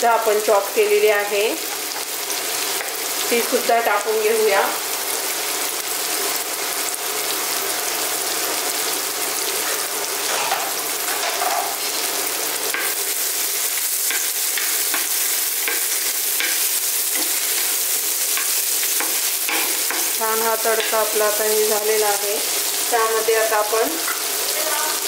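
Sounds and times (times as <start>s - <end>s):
garlic sizzling in hot oil: 0.0s - 25.0s
spatula scraping pan: 13.9s - 21.0s.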